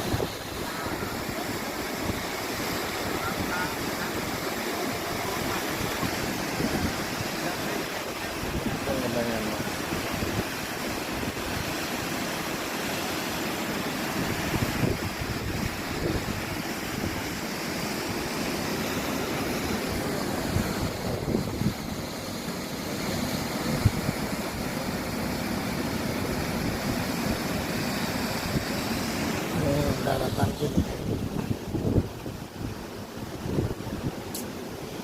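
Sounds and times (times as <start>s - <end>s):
water rushing: 0.0s - 35.0s
wind buffeting microphone: 14.2s - 17.3s, 19.7s - 22.1s, 28.3s - 34.3s.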